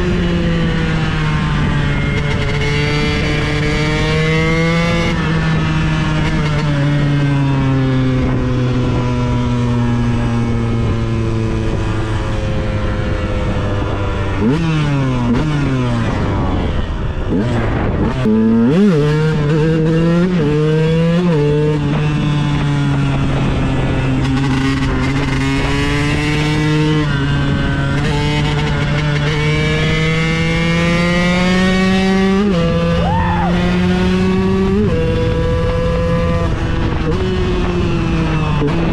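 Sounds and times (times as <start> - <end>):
two-stroke motorcycle engine revving: 0.0 - 38.9.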